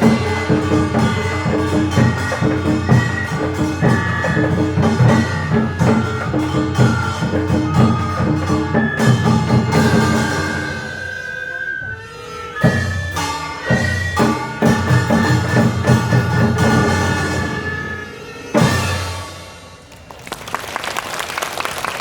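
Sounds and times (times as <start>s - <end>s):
percussion beat: 0.0s - 10.9s, 12.7s - 17.6s.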